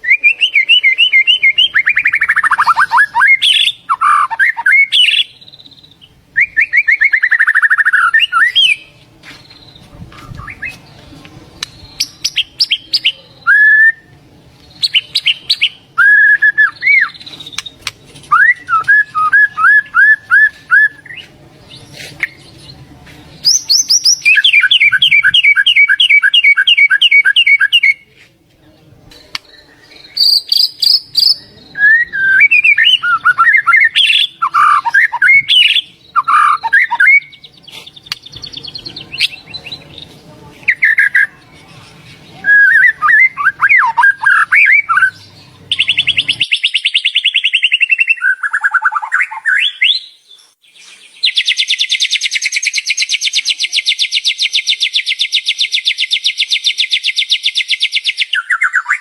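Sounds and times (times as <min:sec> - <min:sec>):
bird singing whistled phrases: 0:00.0 - 0:08.8, 0:12.0 - 0:14.1, 0:14.8 - 0:17.7, 0:18.3 - 0:21.3, 0:23.4 - 0:28.0, 0:29.4 - 0:37.5, 0:42.4 - 0:59.0.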